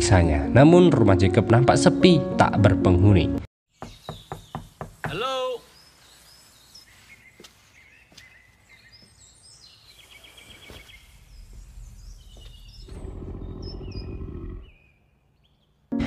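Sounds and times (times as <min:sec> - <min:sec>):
birds chirping: 0:03.7 - 0:16.0
low rumbling drone: 0:11.1 - 0:14.8.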